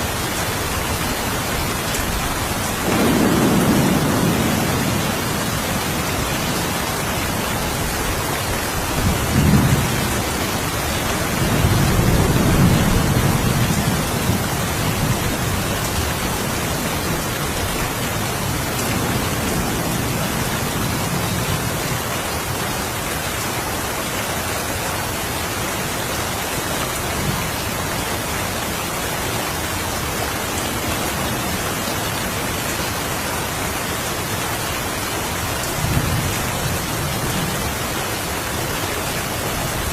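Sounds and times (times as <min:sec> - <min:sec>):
steady rain falling: 0:00.0 - 0:39.9
low thunder rumbling: 0:02.0 - 0:22.0.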